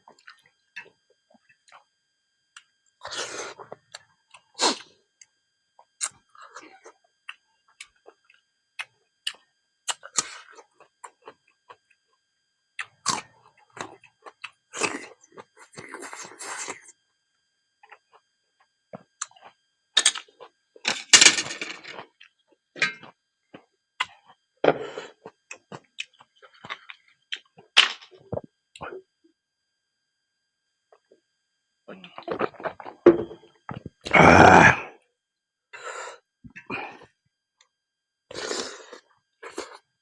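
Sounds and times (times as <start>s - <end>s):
crunchy chewing: 12.8s - 17.0s, 21.9s - 28.9s, 32.0s - 34.4s, 38.3s - 39.8s.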